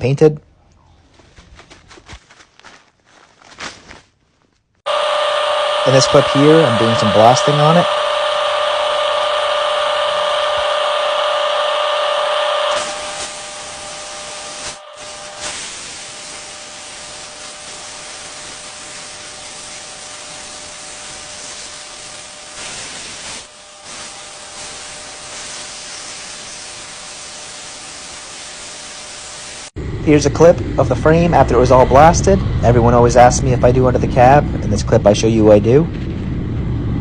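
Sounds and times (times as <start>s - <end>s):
sandblasting nozzle hissing: 4.9s - 29.8s.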